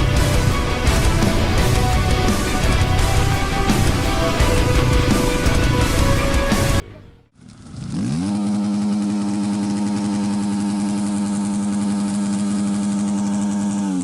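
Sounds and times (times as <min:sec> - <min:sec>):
motor spinning: 0:07.4 - 0:14.0.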